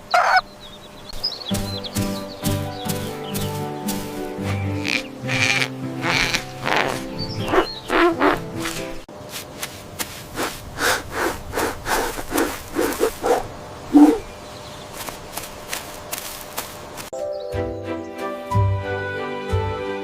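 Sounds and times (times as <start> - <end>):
farm animal calling: 0.0 - 8.8, 13.2 - 14.5
clicks and rubbing noises: 2.9 - 14.2, 14.9 - 17.1.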